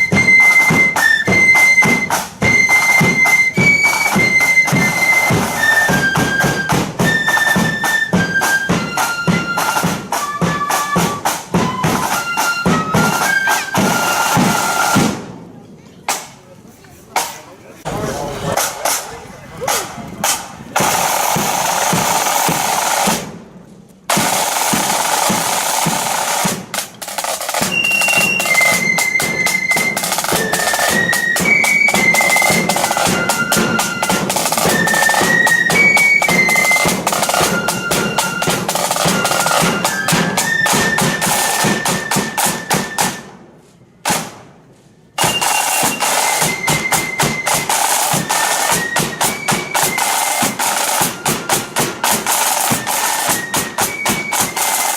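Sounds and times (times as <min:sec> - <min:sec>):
flutes playing a tune: 0:00.0 - 0:15.2, 0:24.6 - 0:43.4, 0:45.0 - 0:54.9
snare drums rolling: 0:00.0 - 0:15.5, 0:17.2 - 0:43.4, 0:44.0 - 0:44.5, 0:45.2 - 0:54.9.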